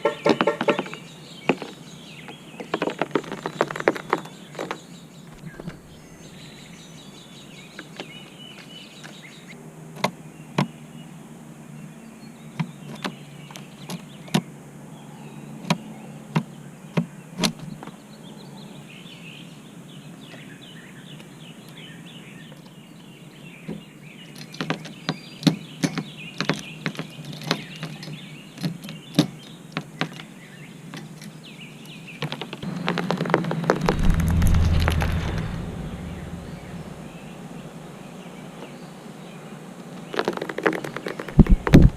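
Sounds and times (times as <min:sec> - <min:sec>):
low rumble: 0:05.4 - 0:06.9, 0:33.7 - 0:37.9, 0:41.4 - 0:41.9.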